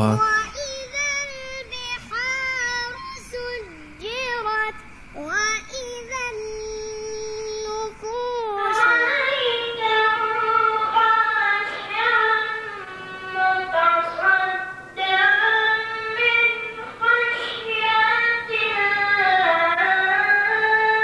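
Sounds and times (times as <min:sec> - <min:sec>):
child chanting recitation: 0:00.0 - 0:11.4.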